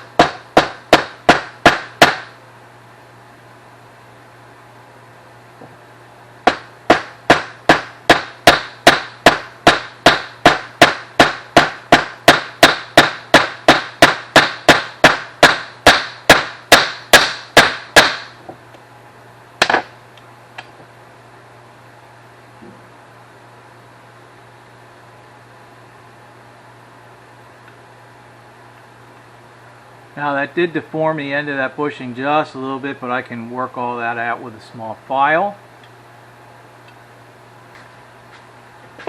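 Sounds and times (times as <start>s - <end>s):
hammer tapping metal: 0.0s - 2.3s.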